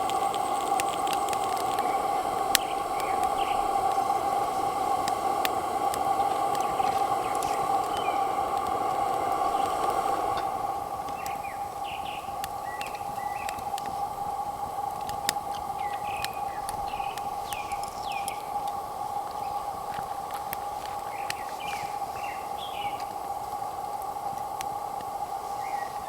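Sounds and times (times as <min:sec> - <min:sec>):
sharp clicks: 0:00.0 - 0:11.5, 0:12.3 - 0:14.1, 0:14.8 - 0:21.7
small birds chirping: 0:00.0 - 0:24.1, 0:25.5 - 0:26.0.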